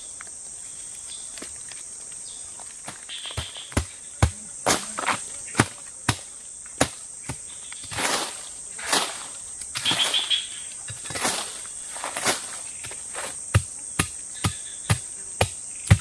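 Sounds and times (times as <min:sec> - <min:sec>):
insects droning: 0:00.0 - 0:16.0
rustling scrapes of brush: 0:07.8 - 0:10.4, 0:11.0 - 0:13.4.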